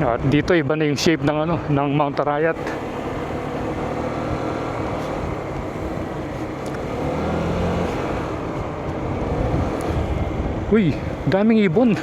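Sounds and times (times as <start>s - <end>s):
motorcycle engine running: 2.5s - 11.4s
wind rushing over microphone: 2.5s - 12.0s.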